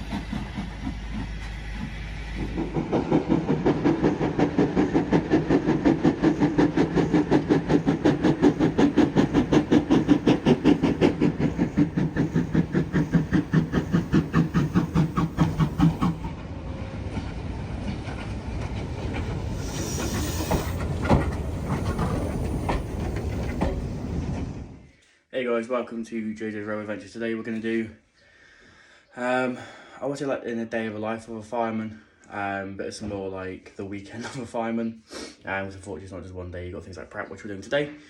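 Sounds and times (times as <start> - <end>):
steam locomotive exhaust beats: 0.0 - 16.3, 17.8 - 24.8
steam hiss: 3.4 - 16.3, 19.4 - 24.7.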